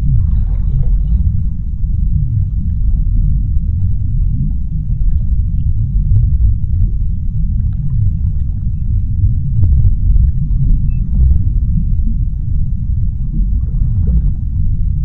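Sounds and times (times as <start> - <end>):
low underwater rumble: 0.0 - 15.0.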